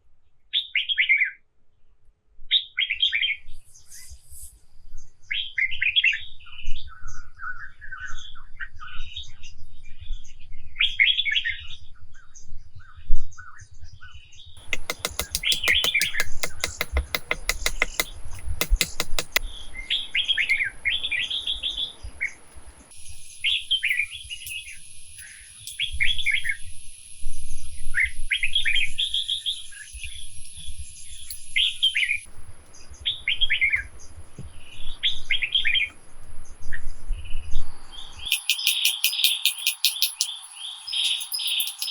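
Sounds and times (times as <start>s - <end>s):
rapid clicks: 14.6s - 20.7s, 38.3s - 41.9s
thin steady high tone: 14.6s - 32.3s, 38.3s - 41.9s
small birds chirping: 14.6s - 35.9s, 38.0s - 41.9s.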